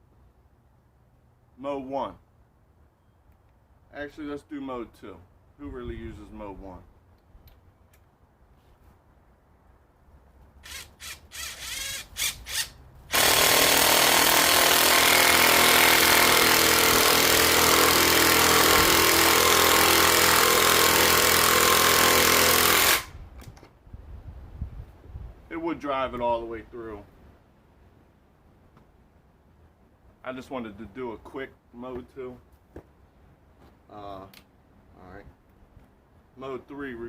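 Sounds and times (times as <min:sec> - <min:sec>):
impact driver hammering: 0:13.1 - 0:23.1.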